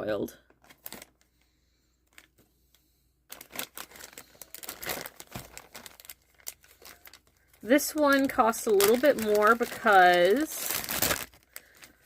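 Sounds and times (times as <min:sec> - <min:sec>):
small items rustling and clicking: 0:02.0 - 0:02.4, 0:03.3 - 0:12.0.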